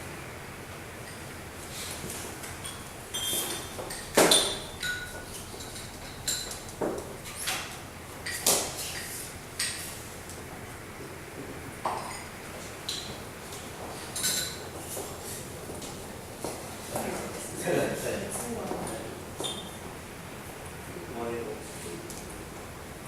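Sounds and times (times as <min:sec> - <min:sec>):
cups and tableware clinking: 0:02.6 - 0:07.6, 0:11.8 - 0:13.2, 0:14.1 - 0:14.8, 0:19.4 - 0:19.8.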